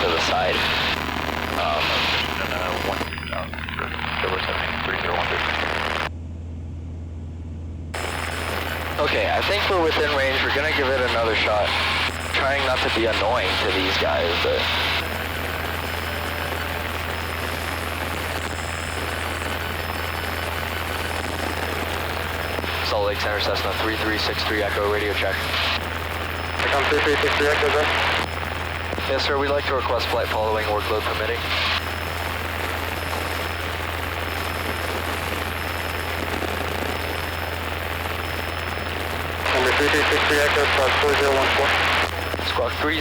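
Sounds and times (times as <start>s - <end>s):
propeller plane engine droning: 0.0s - 22.8s.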